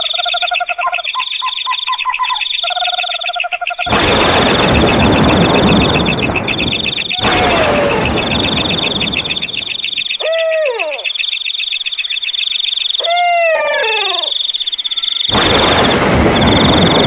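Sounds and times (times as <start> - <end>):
night insects chirring: 0.0 - 17.0
loud rushing noise: 3.9 - 9.6
owl hooting: 6.0 - 15.3.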